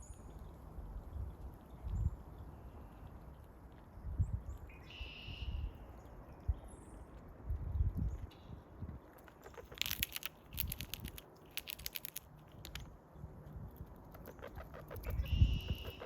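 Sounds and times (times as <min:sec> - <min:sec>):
squirrel gnawing and crunching food: 0:08.9 - 0:16.0.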